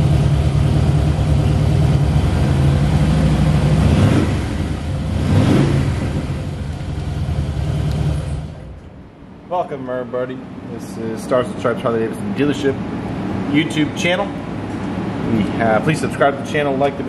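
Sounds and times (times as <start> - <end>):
motorcycle engine idling with blips: 0.0 - 8.5.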